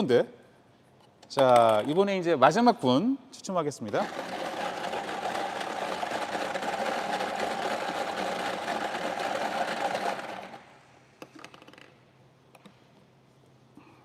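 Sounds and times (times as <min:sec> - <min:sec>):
lottery machine rattling balls: 0:03.9 - 0:10.6.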